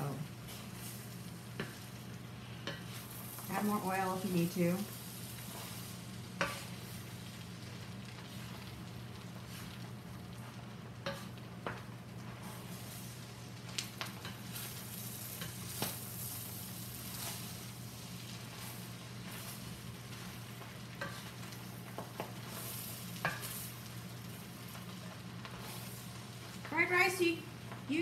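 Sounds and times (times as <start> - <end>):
rice sizzling in oil: 0.0 - 28.0
spatula clacking against pan: 11.0 - 11.9, 23.2 - 23.6.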